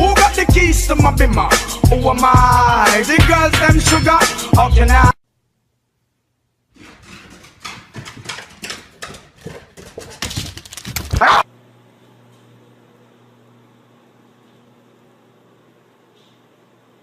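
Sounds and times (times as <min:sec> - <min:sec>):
animal noisy sounds: 0:11.1 - 0:11.5.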